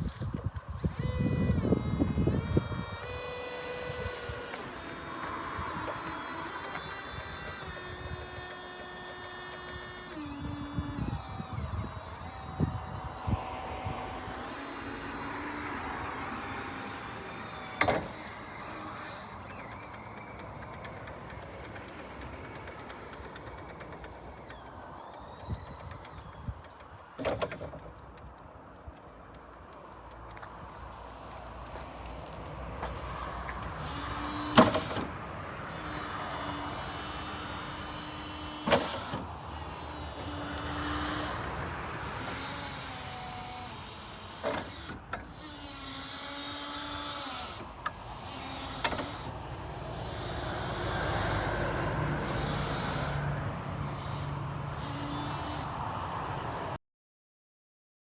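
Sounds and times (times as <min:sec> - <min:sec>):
electric motor whine: 0:00.0 - 0:28.2, 0:30.3 - 0:55.9
steady mechanical hum: 0:00.0 - 0:55.9
sharp clunks: 0:32.4 - 0:35.1, 0:38.3 - 0:39.2.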